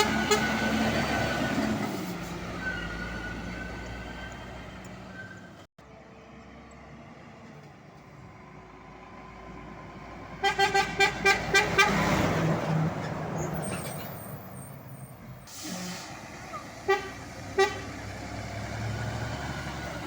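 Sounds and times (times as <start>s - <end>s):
truck air horn toots: 0.0s - 1.0s, 10.4s - 12.3s, 15.5s - 18.1s
truck passing by: 0.0s - 20.0s.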